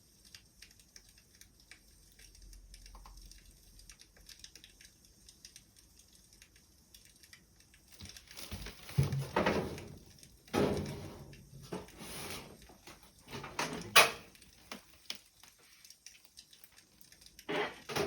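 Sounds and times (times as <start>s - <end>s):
wood fire crackling: 0.0s - 17.9s
rustling: 7.9s - 10.0s.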